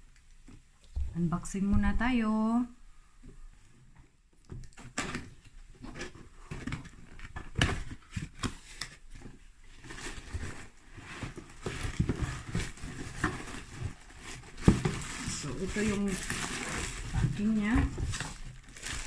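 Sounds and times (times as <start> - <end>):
packaging rustling: 4.7 - 19.0
cardboard box being opened: 4.9 - 19.0.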